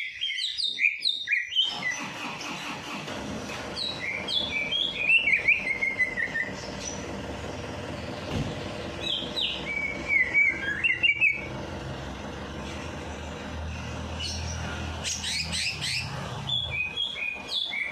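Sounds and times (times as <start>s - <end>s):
songbird singing: 0.0s - 1.7s, 3.8s - 11.6s, 14.0s - 17.9s.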